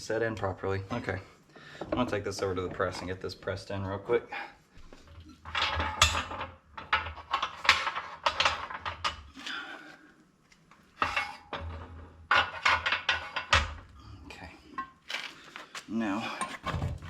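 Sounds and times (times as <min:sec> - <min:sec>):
metal tools clinking and clattering: 0:05.4 - 0:09.3, 0:11.0 - 0:13.8.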